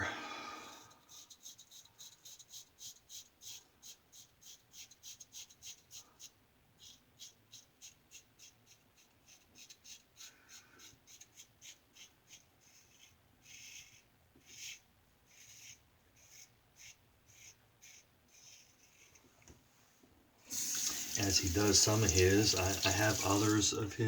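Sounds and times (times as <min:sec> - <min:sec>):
razor scraping stubble: 0:20.5 - 0:23.8.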